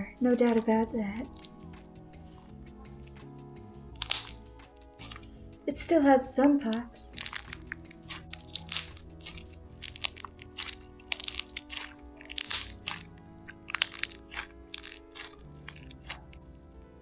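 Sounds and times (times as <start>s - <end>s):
soft background music: 0.0s - 17.0s
slime crackling pops: 0.4s - 1.6s, 4.0s - 5.4s, 6.4s - 16.4s.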